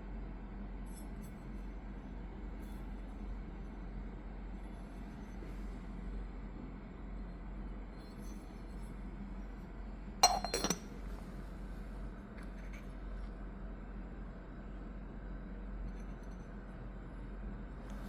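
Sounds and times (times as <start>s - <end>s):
clay teapot lid clinking: 10.2s - 10.8s.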